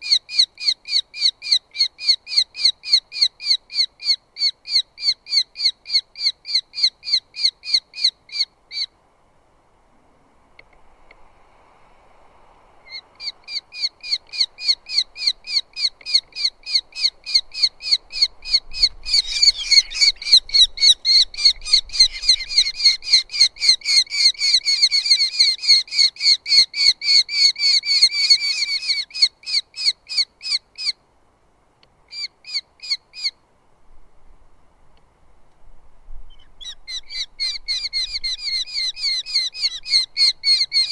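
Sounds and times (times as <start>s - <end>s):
bird calling sharp repeated notes: 12.9s - 31.0s, 36.3s - 40.9s.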